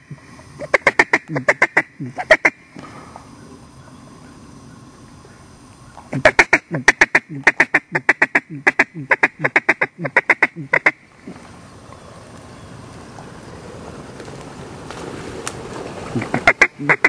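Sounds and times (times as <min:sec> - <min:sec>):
duck call quacking: 0:00.6 - 0:02.6, 0:06.1 - 0:11.0, 0:16.2 - 0:17.0.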